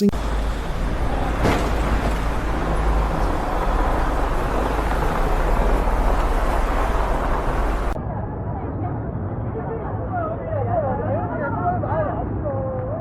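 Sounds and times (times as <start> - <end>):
low rumbling drone: 0.0 - 8.2.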